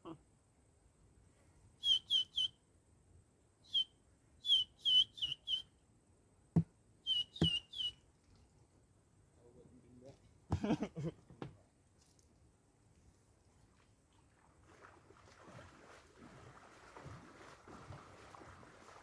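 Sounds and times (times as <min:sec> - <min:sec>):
ducks whistling calls: 0:01.8 - 0:02.5, 0:03.7 - 0:05.7, 0:07.0 - 0:08.0.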